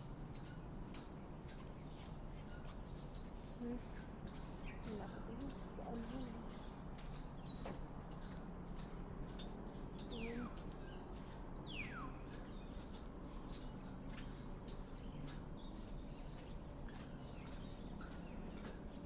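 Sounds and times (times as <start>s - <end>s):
faint bird chirps and ticks: 0.0s - 19.0s.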